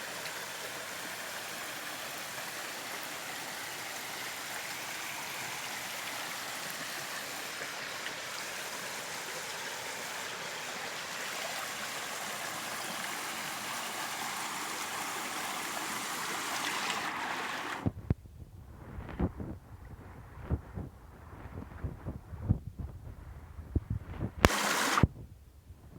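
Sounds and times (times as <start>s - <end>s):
flowing water rushing: 0.0s - 17.9s, 24.4s - 25.0s.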